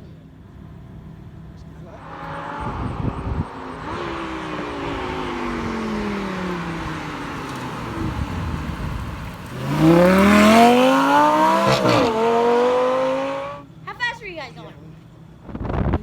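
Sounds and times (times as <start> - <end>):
car engine accelerating: 0.7 - 13.8.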